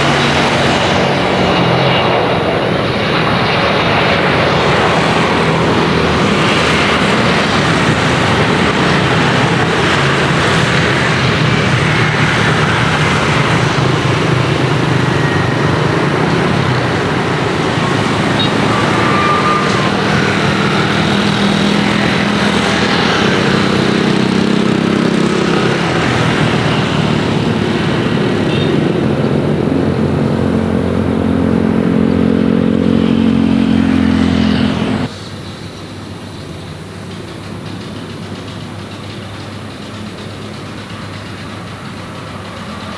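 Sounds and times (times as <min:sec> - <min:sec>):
loud humming engine: 0:00.0 - 0:35.1.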